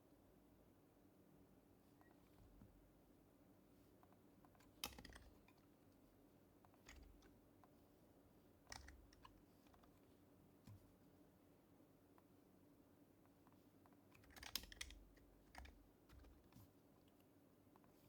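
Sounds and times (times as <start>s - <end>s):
faint keyboard keystrokes: 4.5s - 5.7s, 6.7s - 7.4s, 8.7s - 10.0s, 13.9s - 17.2s.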